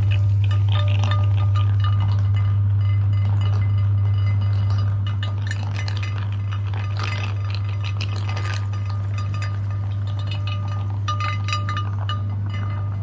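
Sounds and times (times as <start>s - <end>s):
meat grinder humming: 0.0s - 3.1s
light clinking and rattling: 0.0s - 13.0s.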